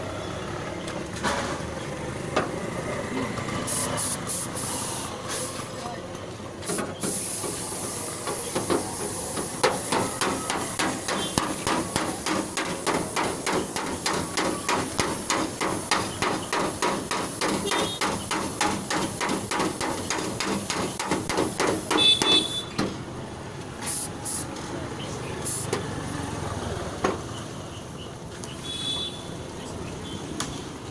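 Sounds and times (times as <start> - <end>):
hammer tapping on sheet metal: 9.4 - 22.9.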